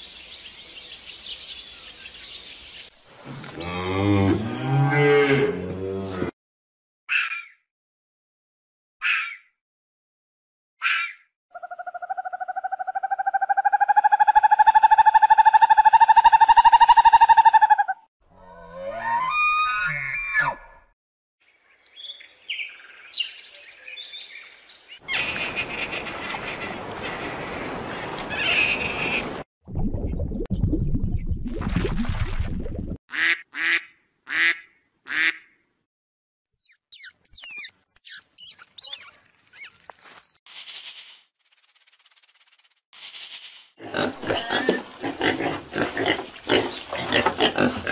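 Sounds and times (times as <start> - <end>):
owl trilling: 36.5 - 40.4
high gliding chirps and squeaks: 36.5 - 40.5.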